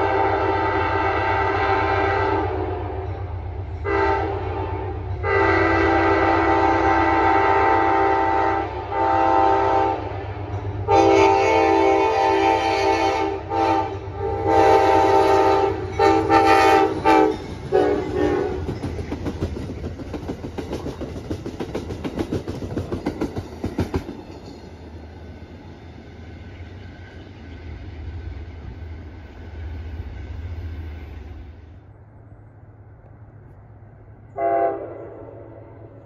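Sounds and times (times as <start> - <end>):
train horn blasts: 0.0 - 10.2, 10.8 - 18.8, 34.3 - 36.0
train wheels clicking on rails: 14.8 - 31.6.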